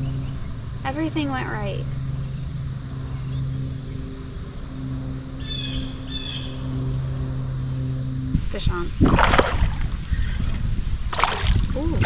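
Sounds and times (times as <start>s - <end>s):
steady low hum: 0.0s - 12.0s
bird squawking: 10.0s - 10.6s.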